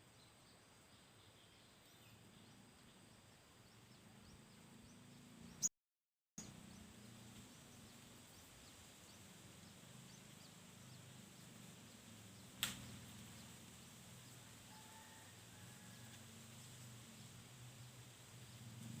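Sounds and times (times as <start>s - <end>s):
sharp click: 12.6s - 12.9s.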